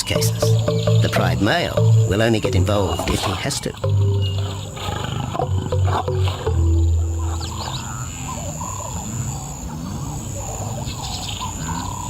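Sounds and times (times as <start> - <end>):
birds calling: 0.0 - 12.0
lion growling: 2.9 - 12.0.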